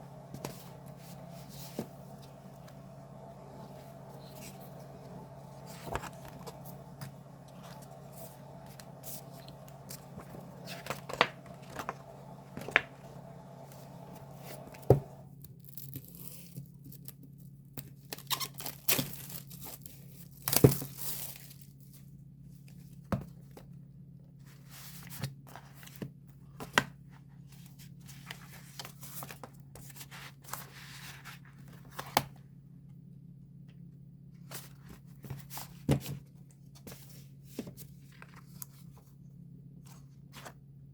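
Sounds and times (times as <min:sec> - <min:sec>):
steady low hum: 0:00.0 - 0:15.5
wrapping tearing and crinkling: 0:18.0 - 0:21.9.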